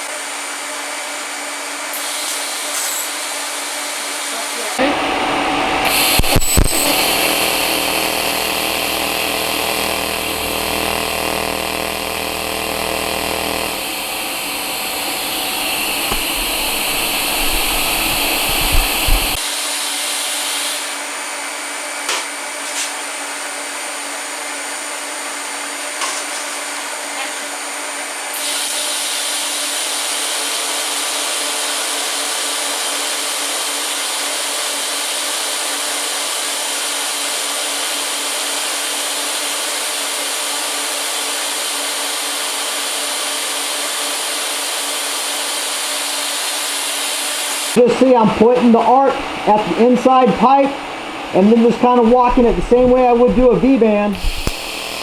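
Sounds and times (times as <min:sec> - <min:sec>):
welding arc buzzing: 0:01.9 - 0:19.4, 0:45.9 - 0:55.0
welding arc hissing: 0:01.9 - 0:21.0, 0:45.5 - 0:55.0
sharp clicks of arc striking: 0:05.8 - 0:19.4, 0:54.1 - 0:55.0.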